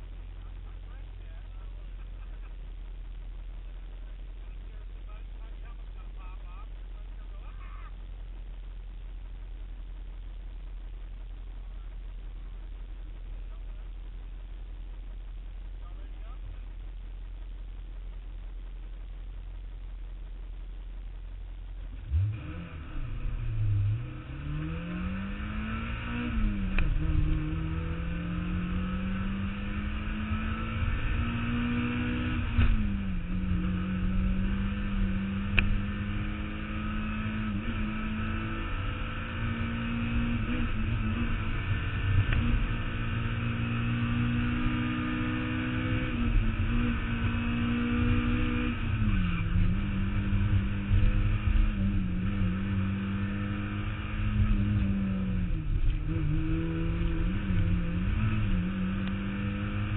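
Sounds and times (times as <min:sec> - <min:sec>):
road and wind noise: 0:00.0 - 0:59.9
car engine revving hard: 0:22.0 - 0:59.9.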